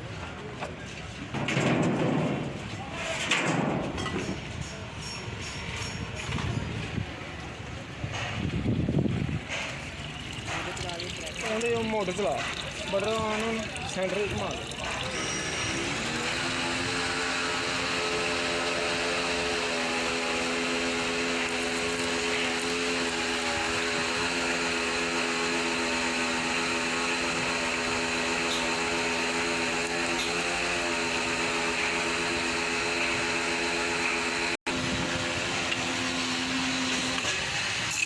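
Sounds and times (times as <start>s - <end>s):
electric motor humming: 14.6s - 38.0s.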